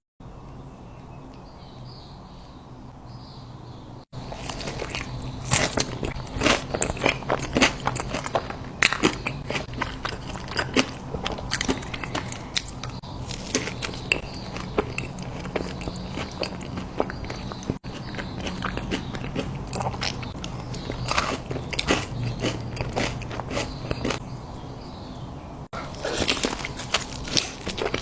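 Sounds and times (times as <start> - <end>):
person chewing crunchy food: 4.2 - 24.2, 25.7 - 28.0.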